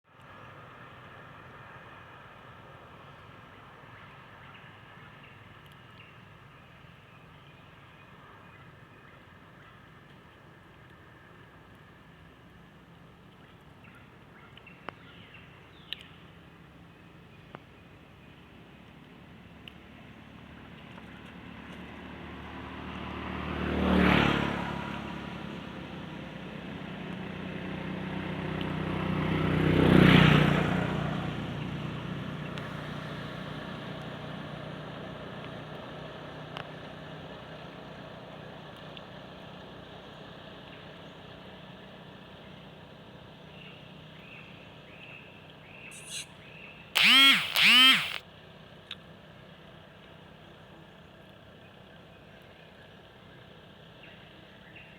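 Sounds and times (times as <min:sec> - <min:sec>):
vehicles passing: 0:19.4 - 0:33.7
loud shrill calls: 0:47.0 - 0:48.2.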